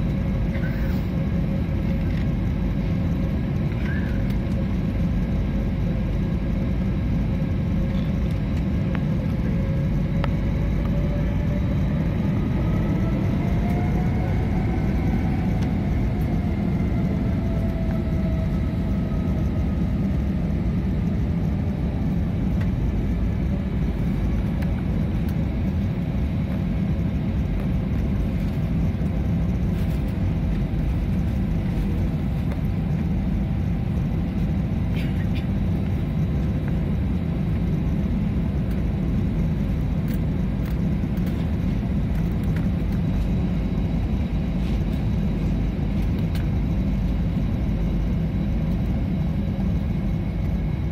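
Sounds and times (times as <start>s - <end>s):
airliner cabin engine rumble: 0.0s - 50.9s.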